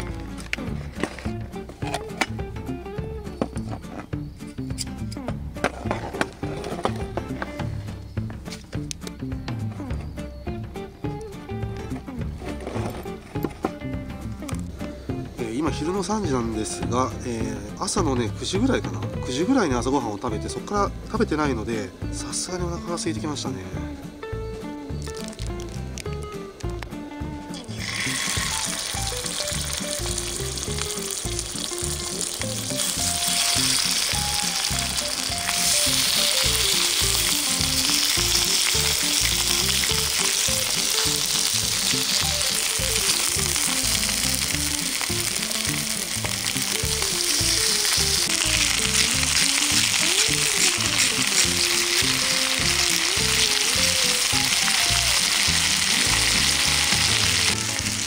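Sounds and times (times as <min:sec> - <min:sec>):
chicken sizzling in oil: 0:27.5 - 0:58.0.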